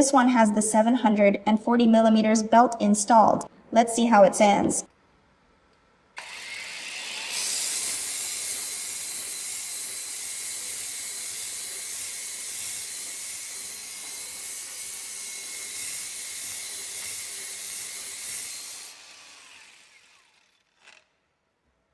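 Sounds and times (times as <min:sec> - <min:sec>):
belt sander grinding metal pipe: 0:06.2 - 0:20.8.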